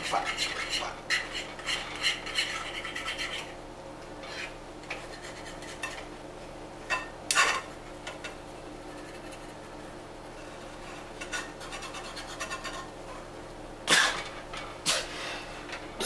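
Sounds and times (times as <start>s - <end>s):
utensil scraping eggs in pot: 0.0s - 3.6s, 4.2s - 6.1s, 7.0s - 13.4s.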